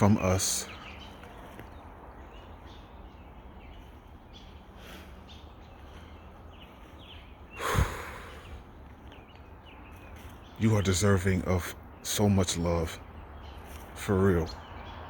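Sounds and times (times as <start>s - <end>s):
faint bird chirps: 0.0s - 15.0s
person breathing sharply: 7.6s - 8.6s.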